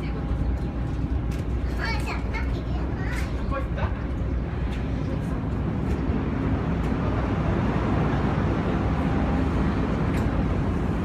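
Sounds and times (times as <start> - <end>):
ferry engine rumble: 0.0 - 11.0.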